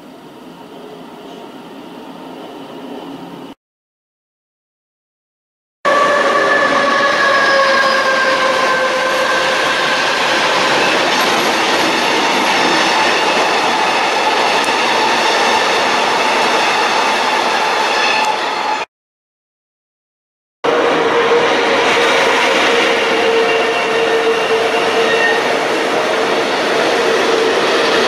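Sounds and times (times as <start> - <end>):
train whine dropping in pitch: 5.9 - 11.6
train wheels rumbling on rails: 6.0 - 18.5, 20.7 - 28.0.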